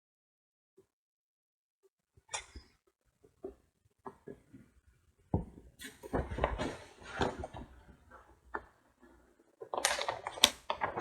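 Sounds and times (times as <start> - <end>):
book pages turning: 5.8 - 11.0.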